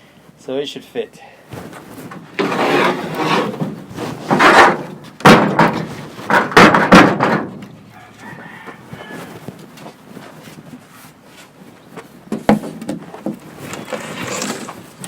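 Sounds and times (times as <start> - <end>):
plywood scraping against wall: 2.0 - 7.5, 12.9 - 15.0.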